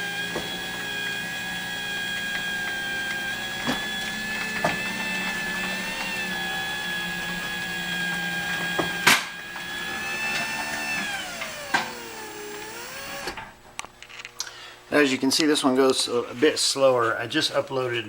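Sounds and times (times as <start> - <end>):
garage door opener motor whine: 0.0 - 13.6.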